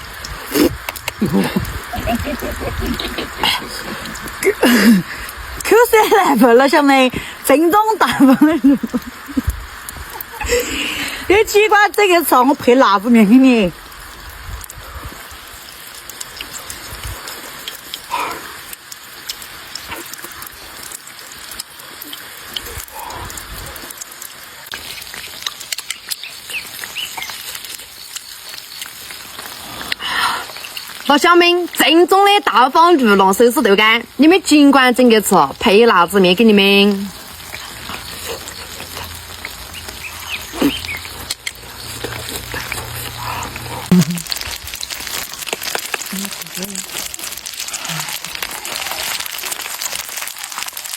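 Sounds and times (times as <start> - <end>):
oil sizzling and crackling: 0.0 - 50.9
short voice-like sound: 43.9 - 44.3.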